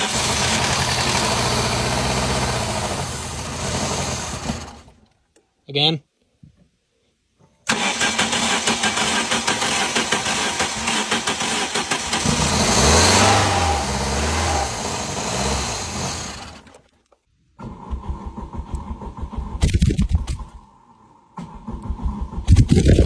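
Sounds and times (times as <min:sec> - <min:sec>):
car engine running: 0:00.0 - 0:05.0, 0:08.2 - 0:16.7
car engine cranking: 0:00.0 - 0:05.1, 0:07.7 - 0:16.9, 0:17.6 - 0:23.0.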